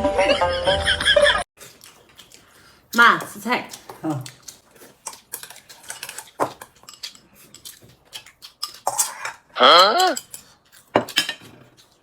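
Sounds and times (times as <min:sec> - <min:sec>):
utensils clicking against bowls: 0:03.0 - 0:11.6.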